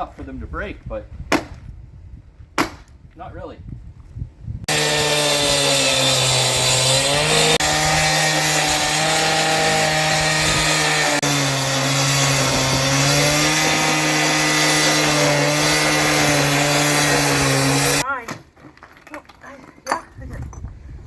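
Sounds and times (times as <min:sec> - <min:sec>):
concrete saw cutting concrete: 0:04.7 - 0:18.1.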